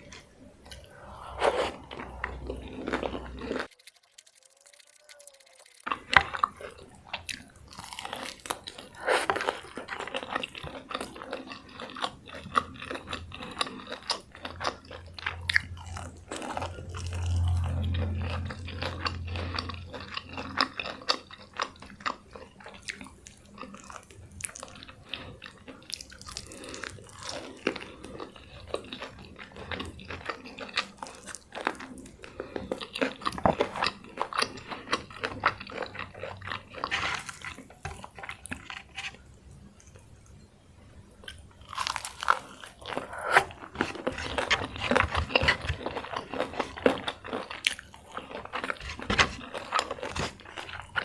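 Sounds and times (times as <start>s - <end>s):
chewing crunchy food: 0.0s - 51.0s
low hum: 0.1s - 6.0s, 15.0s - 21.3s.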